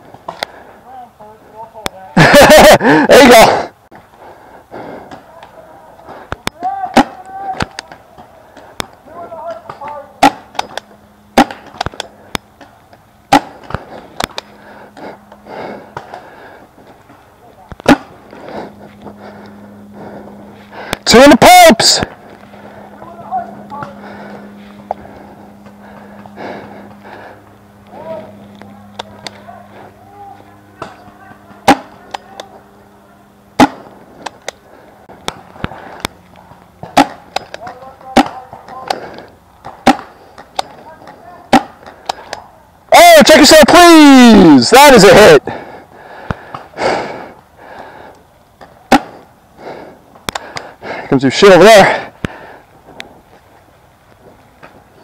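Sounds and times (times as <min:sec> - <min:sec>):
paintball impacts: 0:06.3 - 0:14.5, 0:17.7 - 0:18.4, 0:30.8 - 0:32.6, 0:33.6 - 0:34.6, 0:35.2 - 0:42.5, 0:48.6 - 0:49.2
paintball markers firing: 0:08.7 - 0:12.7, 0:30.8 - 0:32.5, 0:36.8 - 0:42.5.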